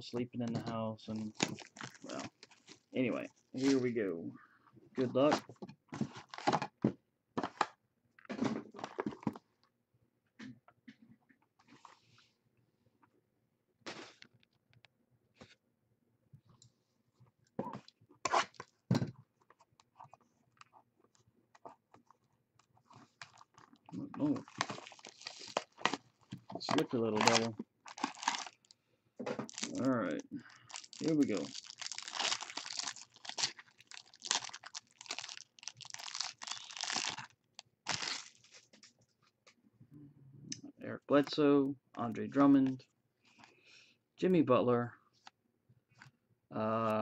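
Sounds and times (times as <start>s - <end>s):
cardboard packaging tearing: 24.2s - 26.0s, 27.1s - 28.6s, 29.5s - 30.0s, 30.7s - 38.6s.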